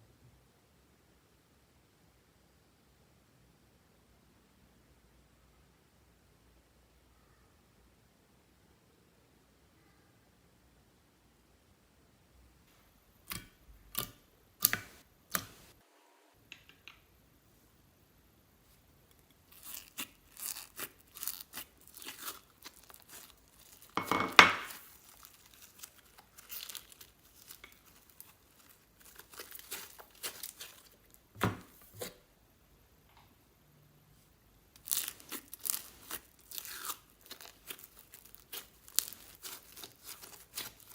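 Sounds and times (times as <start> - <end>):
slime crackling: 19.4 - 31.5, 34.7 - 40.9.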